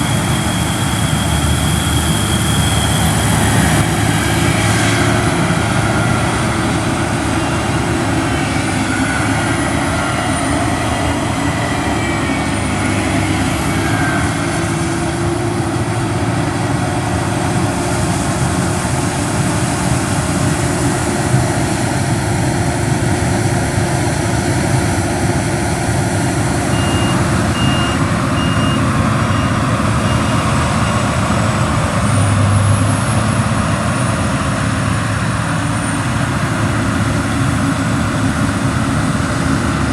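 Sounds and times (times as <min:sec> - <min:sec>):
heavy harvest machinery running: 0:00.0 - 0:39.9
short beeps: 0:26.7 - 0:31.0.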